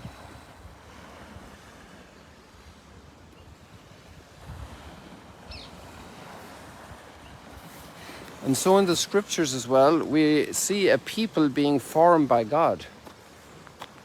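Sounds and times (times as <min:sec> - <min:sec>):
wind rushing over microphone: 0:02.6 - 0:10.5.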